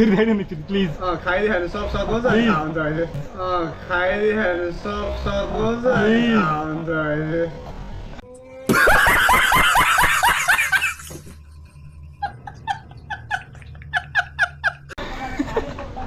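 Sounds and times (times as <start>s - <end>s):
person laughing: 8.7s - 11.4s, 12.2s - 15.8s
high-pitched chuckles: 8.7s - 15.8s.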